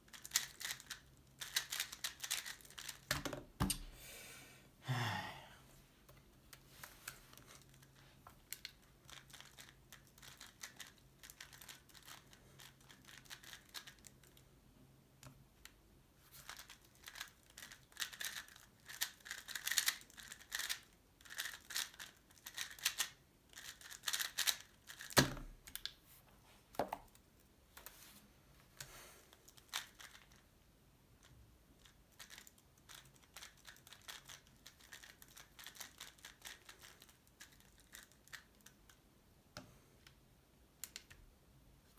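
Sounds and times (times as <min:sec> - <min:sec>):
puzzle cube plastic clicks: 0:00.1 - 0:03.8, 0:08.5 - 0:14.4, 0:16.4 - 0:25.9, 0:31.8 - 0:39.0.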